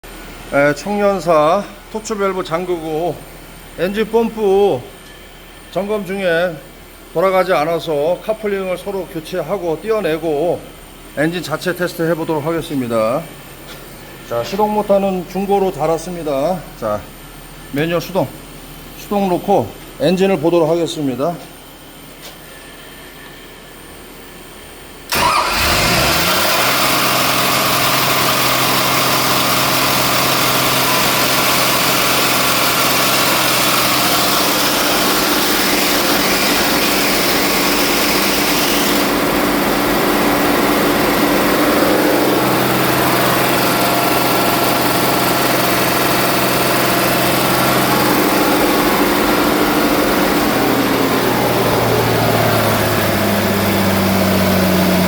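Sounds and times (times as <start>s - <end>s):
diesel engine starting and running: 25.1s - 55.0s.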